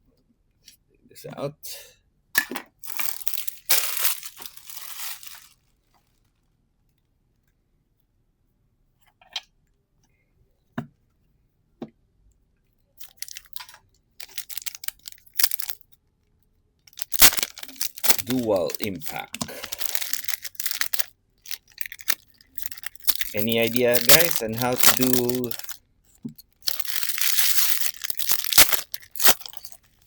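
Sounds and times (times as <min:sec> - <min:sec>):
wrapper crinkling and tearing: 0:02.8 - 0:05.8, 0:13.0 - 0:15.8, 0:16.9 - 0:25.8, 0:26.6 - 0:30.0.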